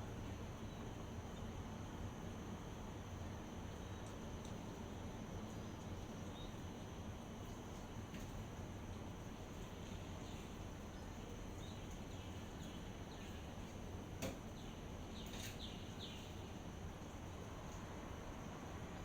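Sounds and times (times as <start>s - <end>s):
outdoor background hiss: 0.0s - 19.0s
faint bird chirps: 14.6s - 16.4s.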